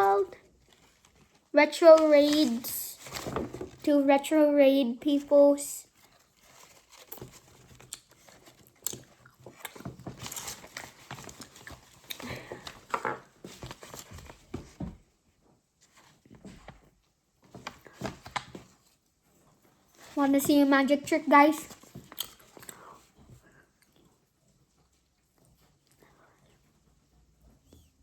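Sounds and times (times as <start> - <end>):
packaging rustling and crinkling: 0.0 - 3.9, 5.9 - 14.9, 19.8 - 22.7.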